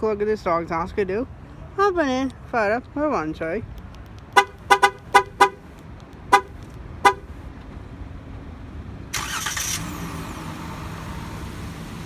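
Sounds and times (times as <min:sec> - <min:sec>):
car horn chirps: 0:04.3 - 0:05.7, 0:06.3 - 0:07.4
car engine idling: 0:04.3 - 0:07.7
engine starter: 0:09.1 - 0:11.3.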